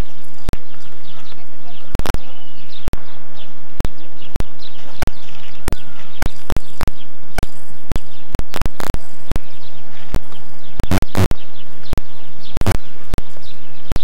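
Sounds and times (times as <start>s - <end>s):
birds chirping: 0.0s - 14.0s
sharp clicks: 10.1s - 12.0s, 12.6s - 12.8s.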